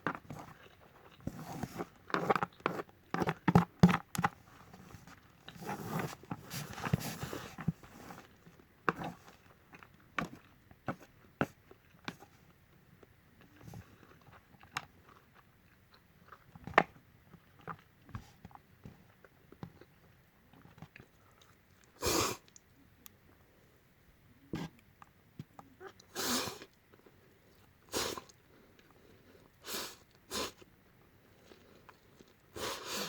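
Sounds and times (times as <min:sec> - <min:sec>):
chewing and smacking: 0:13.0 - 0:22.7.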